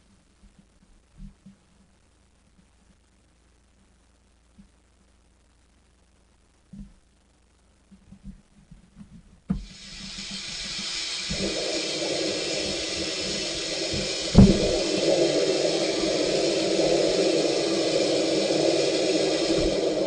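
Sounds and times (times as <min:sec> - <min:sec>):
water jets spraying: 0:09.5 - 0:20.0
low steady drone: 0:09.6 - 0:20.0.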